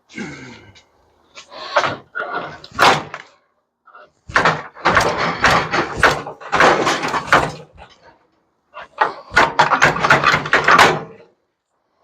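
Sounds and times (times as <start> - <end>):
sheet metal clanking and scraping: 4.2 - 8.2, 8.8 - 11.3.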